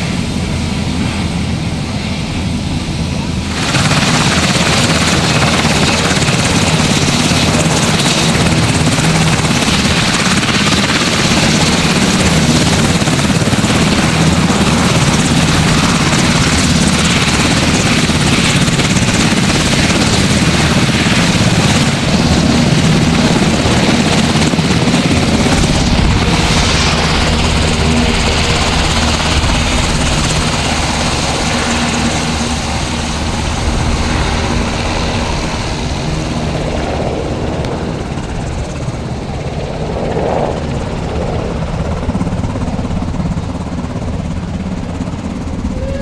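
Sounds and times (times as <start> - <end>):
helicopter engines and rotor: 0.0 - 46.0
deep rumble: 24.6 - 31.4.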